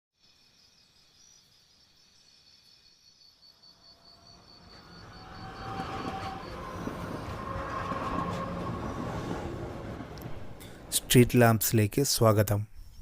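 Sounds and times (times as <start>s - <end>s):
faint insect-like chirping: 0.2s - 6.6s
train rumble: 3.9s - 12.6s.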